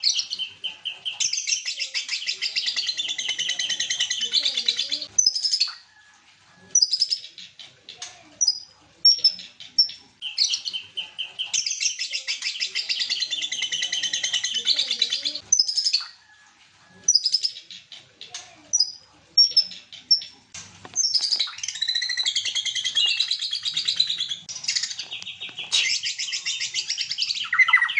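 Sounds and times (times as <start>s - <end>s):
bird sharp calls and whistles: 0.0s - 5.8s, 6.7s - 7.6s, 8.4s - 16.2s, 17.0s - 17.9s, 21.0s - 27.9s
bird singing rapid high runs: 21.0s - 27.9s.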